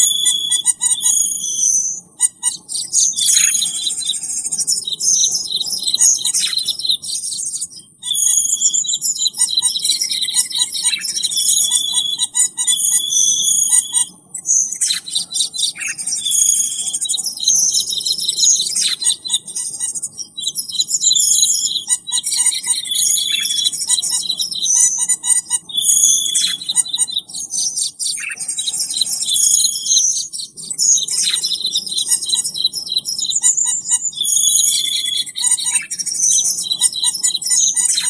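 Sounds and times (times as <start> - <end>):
bird chirps and whistles: 0.0 - 38.0.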